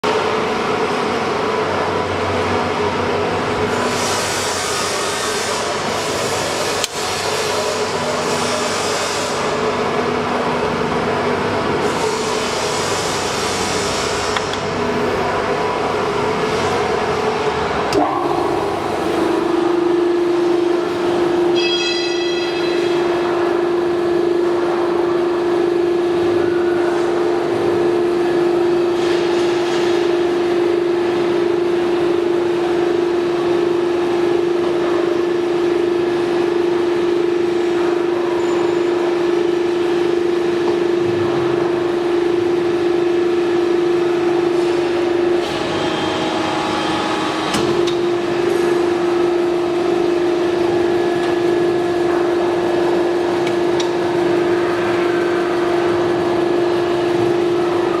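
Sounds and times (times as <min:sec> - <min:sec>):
steady machine hum: 0:00.0 - 0:58.0
machine noise: 0:00.1 - 0:58.0
short ringing tone: 0:19.9 - 0:23.9.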